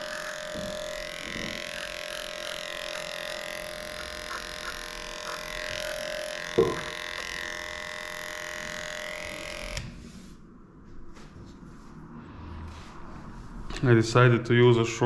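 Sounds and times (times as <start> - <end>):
electric clippers humming: 0.0 - 10.0
sharp knock: 6.6 - 6.9.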